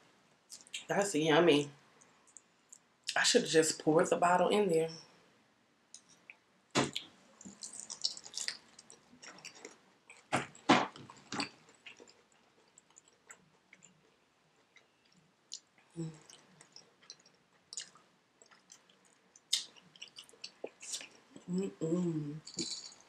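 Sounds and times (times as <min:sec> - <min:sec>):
wet chewing sounds: 0:06.0 - 0:21.3
crunching fried chicken: 0:06.9 - 0:21.2.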